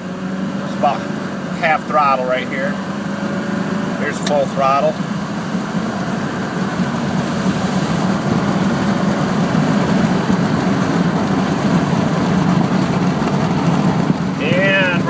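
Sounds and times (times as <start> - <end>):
diesel truck engine drone: 0.0 - 15.0
road noise: 0.0 - 15.0.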